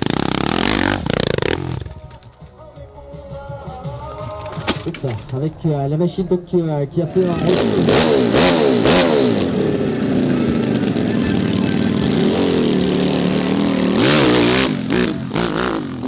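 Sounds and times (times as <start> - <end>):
dirt bike engine revving: 0.0 - 2.0, 7.1 - 16.0.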